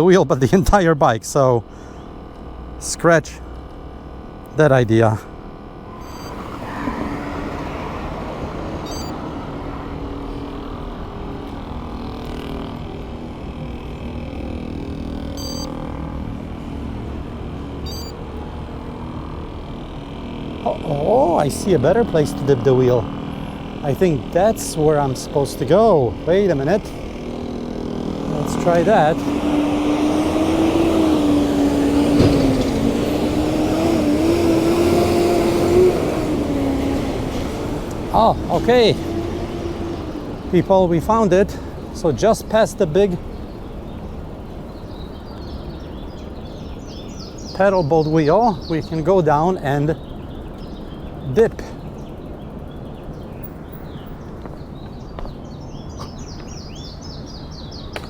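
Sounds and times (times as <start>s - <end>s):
faint steady hum: 0.0s - 30.0s
noisy background: 0.0s - 56.3s
steady low rumble: 0.3s - 29.2s.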